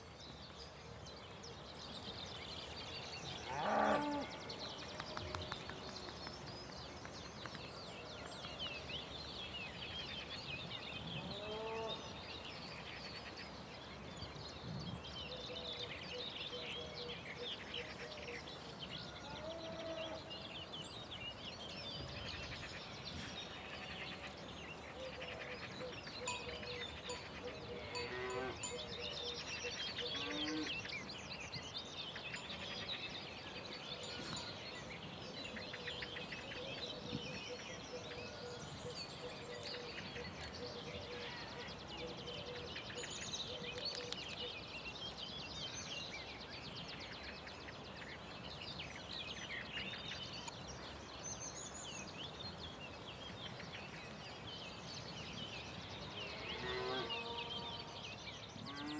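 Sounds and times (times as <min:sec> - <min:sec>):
birds singing and chirping: 0:00.0 - 0:58.9
farm animal calls: 0:03.5 - 0:04.3.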